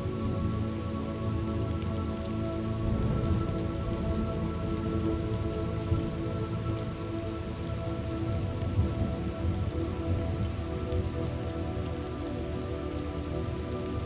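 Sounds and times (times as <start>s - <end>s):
soft music drone: 0.0s - 14.0s
steady rain: 0.0s - 14.0s
low rumble: 2.8s - 11.1s.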